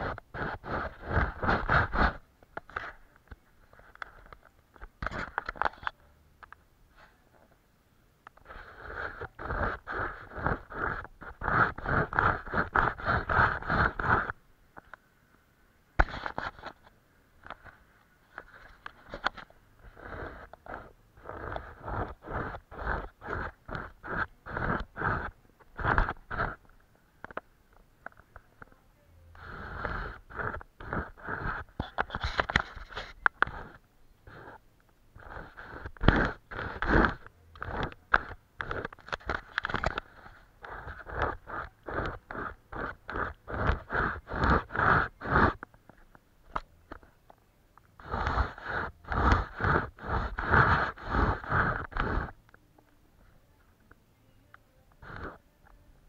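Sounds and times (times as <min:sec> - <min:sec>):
paintbrush scrubbing: 0:08.4 - 0:14.4, 0:18.3 - 0:26.6, 0:29.4 - 0:34.6, 0:35.2 - 0:45.6, 0:48.0 - 0:52.4, 0:55.0 - 0:55.4.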